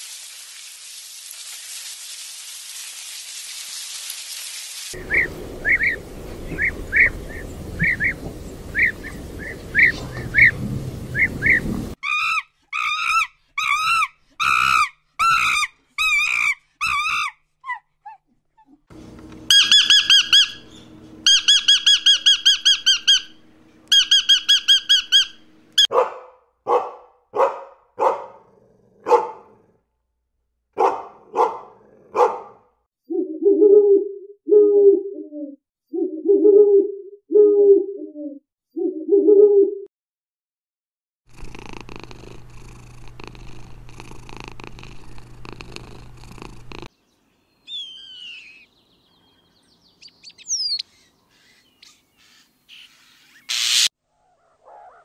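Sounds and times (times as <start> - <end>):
steady hiss: 0.0 - 12.0
birds chirping: 5.0 - 12.2, 19.0 - 26.0, 46.9 - 55.0
bird calls: 5.0 - 17.2, 19.4 - 25.9, 47.1 - 55.0.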